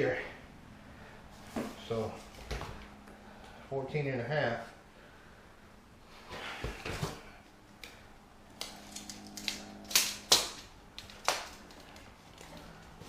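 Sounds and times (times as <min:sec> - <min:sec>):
tape measure snaps: 0:08.6 - 0:11.5.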